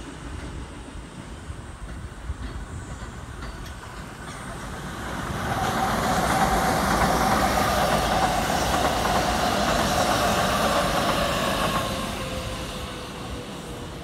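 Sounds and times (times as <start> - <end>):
electric train passing: 0.0 - 14.0.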